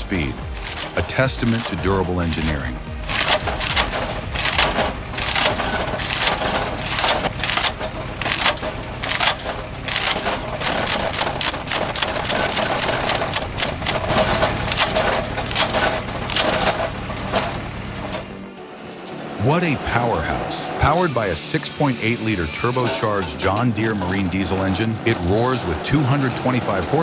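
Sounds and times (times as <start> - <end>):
wood chipper crunching logs: 0.0 - 18.4
machine drive humming: 0.0 - 27.0.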